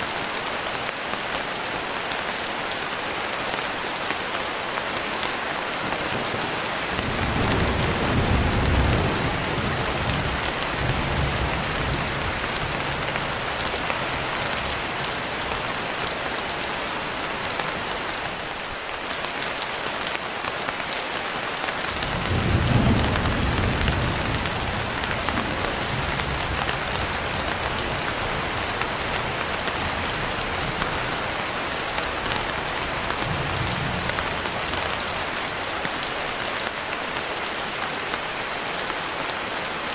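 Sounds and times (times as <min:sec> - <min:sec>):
heavy rain: 0:00.0 - 0:39.9
low thunder rumbling: 0:07.0 - 0:14.2, 0:22.0 - 0:30.7.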